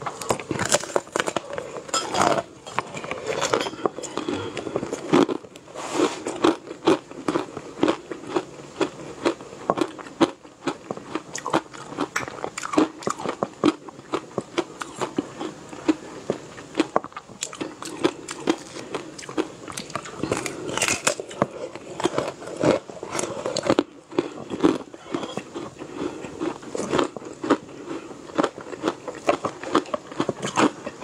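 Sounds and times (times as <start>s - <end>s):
crunchy chewing: 0.0s - 31.0s.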